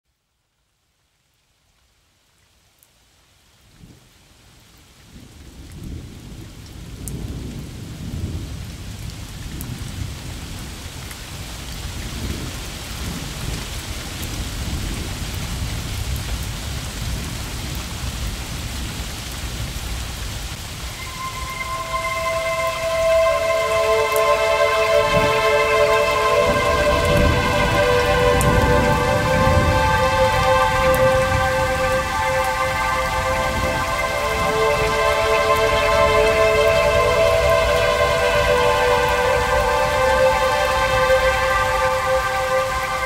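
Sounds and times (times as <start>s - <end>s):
rain: 0.0s - 43.0s.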